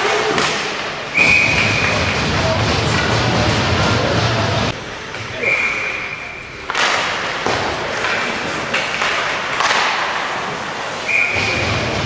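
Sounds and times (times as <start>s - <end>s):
puck and sticks knocking boards: 0.0s - 3.6s, 6.6s - 10.7s
skates on ice: 5.1s - 12.0s.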